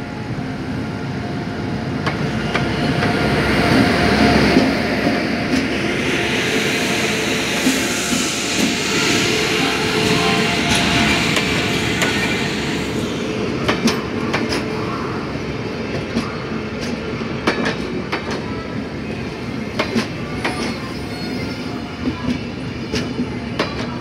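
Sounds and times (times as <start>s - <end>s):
train coaches rumbling past: 0.0s - 24.0s
locomotive rushing past: 2.0s - 15.6s.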